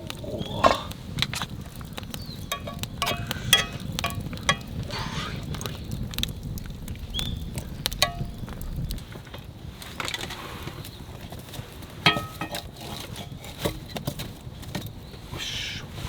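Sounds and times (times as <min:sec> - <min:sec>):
sharp metallic clinks and taps: 0:02.5 - 0:04.7.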